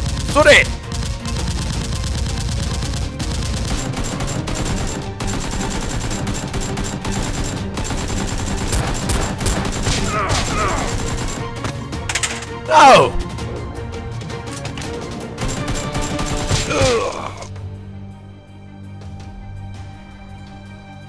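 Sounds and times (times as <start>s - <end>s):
automatic gunfire: 0.0s - 11.4s
background music: 0.0s - 21.0s.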